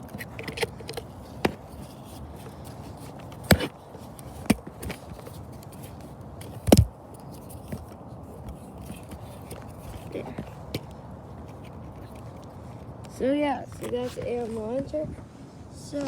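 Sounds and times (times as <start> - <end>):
handling knocks and clicks: 0.0 - 12.5.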